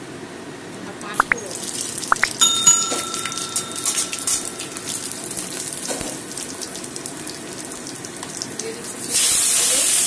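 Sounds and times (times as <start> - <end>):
food frying in hot oil: 1.3 - 2.4, 3.9 - 10.0
steady ringing tone: 2.2 - 6.5.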